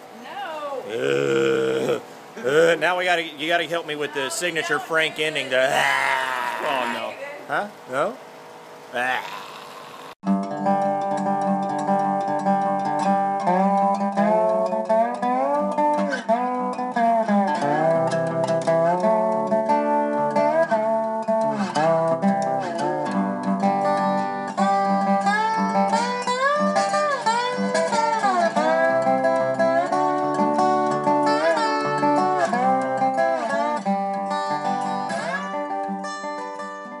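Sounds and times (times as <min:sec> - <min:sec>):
slide guitar: 0:00.9 - 0:03.5, 0:05.4 - 0:07.3, 0:09.0 - 0:37.0
acoustic guitar: 0:09.0 - 0:37.0.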